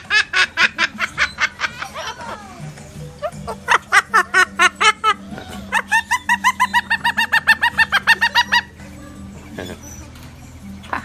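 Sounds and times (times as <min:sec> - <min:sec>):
bird mimicking laughter: 0:00.0 - 0:02.3, 0:03.2 - 0:08.8.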